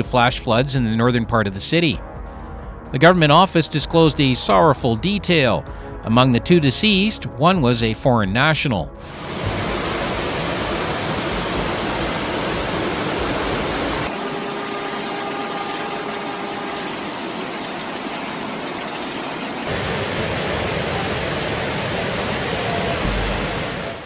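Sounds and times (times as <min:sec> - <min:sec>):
rushing floodwater roar: 0:09.0 - 0:24.0.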